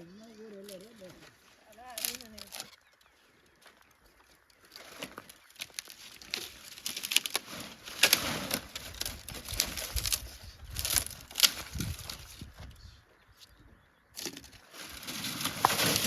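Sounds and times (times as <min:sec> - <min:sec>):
brushwood rustling: 0:00.0 - 0:13.6, 0:14.2 - 0:16.0
twigs snapping: 0:00.6 - 0:02.8, 0:04.4 - 0:12.5, 0:14.2 - 0:16.0.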